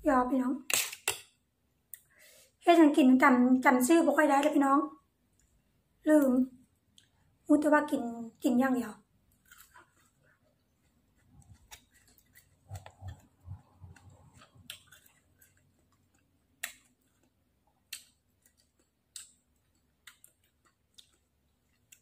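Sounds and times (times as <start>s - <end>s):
soft chewing: 5.3s - 7.4s, 9.1s - 22.0s.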